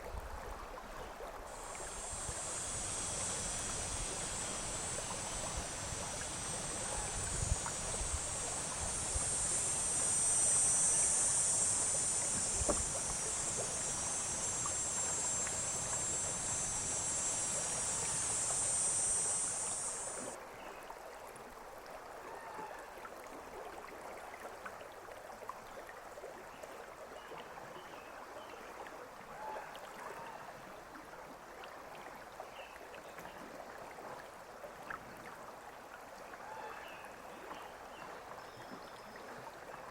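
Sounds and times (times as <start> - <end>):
water gurgling: 1.4 - 20.4
river water rushing: 1.5 - 20.4
low knocks on canoe: 12.6 - 13.0.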